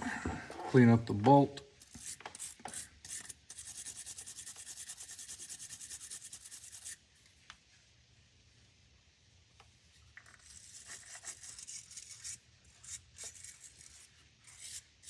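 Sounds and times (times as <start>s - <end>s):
wire brush scrubbing a bolt: 10.2s - 15.0s.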